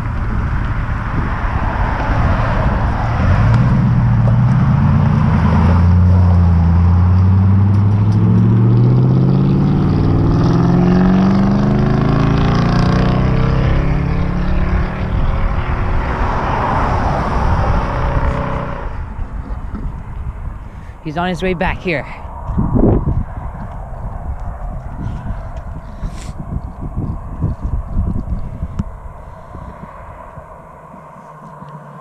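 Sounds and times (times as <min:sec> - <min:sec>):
truck engine accelerating: 0:00.0 - 0:20.6.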